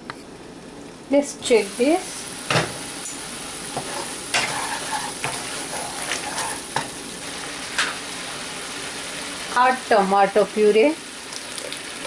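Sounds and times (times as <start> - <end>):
masala sizzling in hot oil: 1.4 - 12.0
utensil scraping a pan: 3.7 - 6.9.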